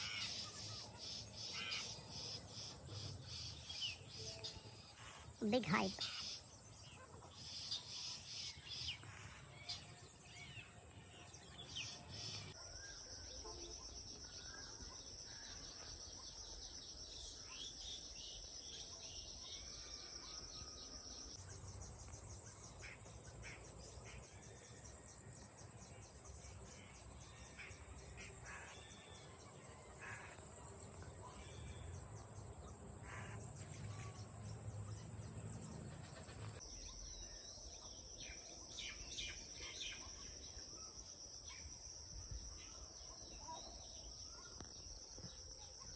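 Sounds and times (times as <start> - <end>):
bird chirps: 21.4 - 37.4.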